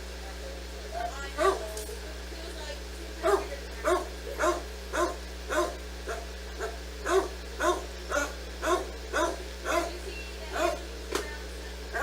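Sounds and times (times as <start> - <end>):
low electrical hum: 0.0 - 12.0
dog barking: 1.4 - 1.8, 3.2 - 10.9.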